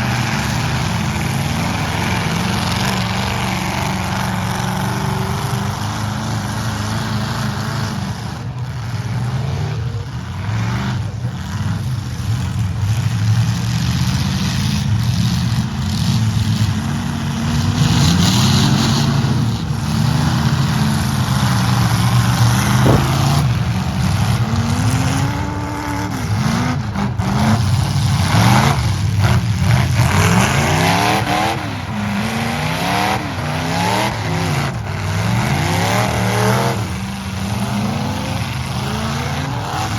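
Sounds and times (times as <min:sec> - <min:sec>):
truck engines revving: 0:00.0 - 0:39.9
sharp knocks: 0:22.8 - 0:23.6.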